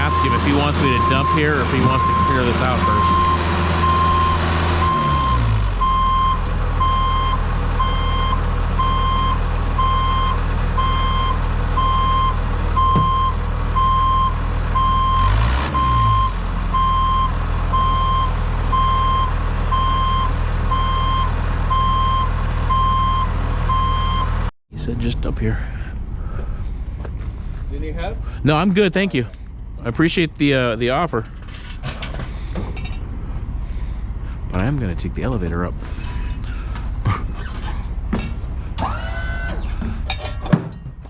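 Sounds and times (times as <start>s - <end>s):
reversing alarm beeping: 0.0s - 24.5s, 34.2s - 36.3s
diesel engine running: 0.0s - 41.0s.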